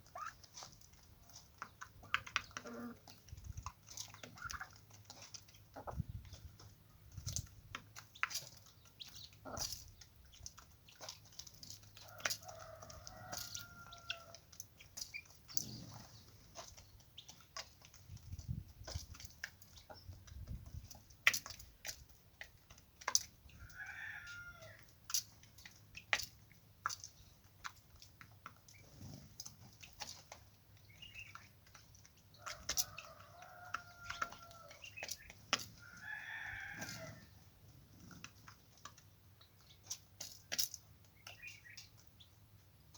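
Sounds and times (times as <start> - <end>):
chickens calling: 0.0 - 42.9
rooster crowing: 12.4 - 14.3, 23.8 - 24.8, 32.8 - 34.7, 35.9 - 37.2.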